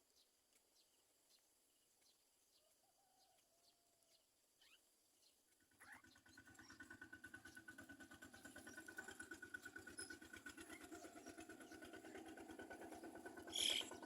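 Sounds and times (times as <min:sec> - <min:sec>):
faint engine pulsing steadily: 0:05.5 - 0:14.0.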